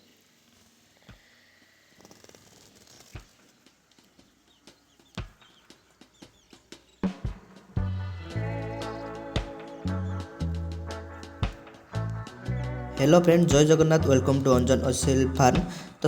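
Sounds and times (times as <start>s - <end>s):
music: 4.6s - 16.0s.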